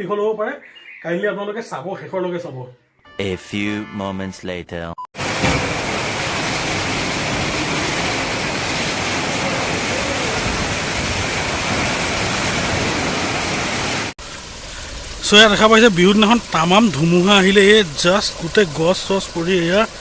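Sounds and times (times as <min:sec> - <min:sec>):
heavy rain: 0:05.2 - 0:20.0
wind: 0:05.2 - 0:20.0.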